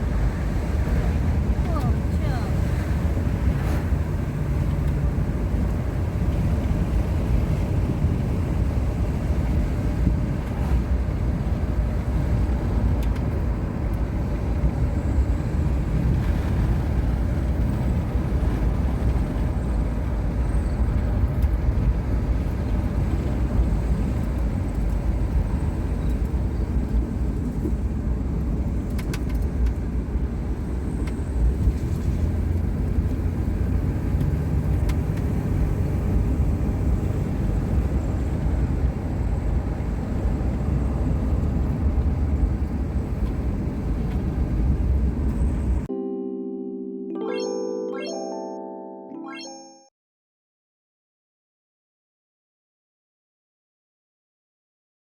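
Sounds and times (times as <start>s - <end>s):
road and engine rumble inside car: 0.0s - 45.9s.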